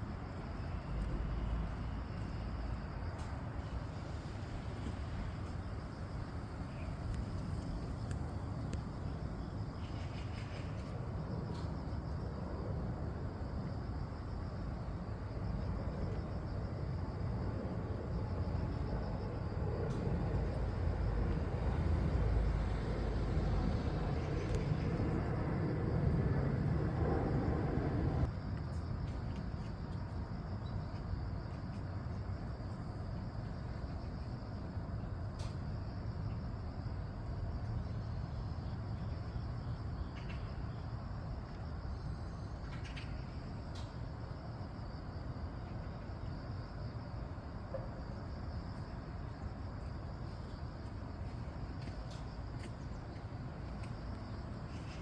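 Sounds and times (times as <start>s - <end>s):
airplane passing overhead: 0.1s - 28.3s.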